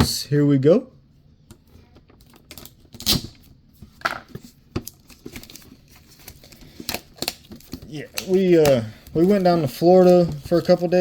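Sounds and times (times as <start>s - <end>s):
cards clicking and rustling: 4.0s - 11.0s
foil wrapper crinkling and tearing: 4.9s - 11.0s.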